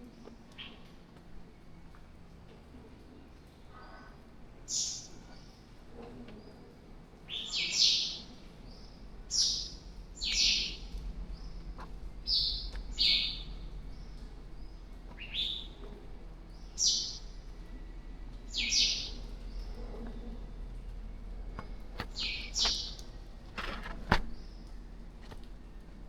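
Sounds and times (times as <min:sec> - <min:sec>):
low steady hum: 0:00.0 - 0:26.0
bird chirping high: 0:07.3 - 0:08.2, 0:09.3 - 0:15.8, 0:16.6 - 0:17.4, 0:18.4 - 0:19.7, 0:22.1 - 0:23.1.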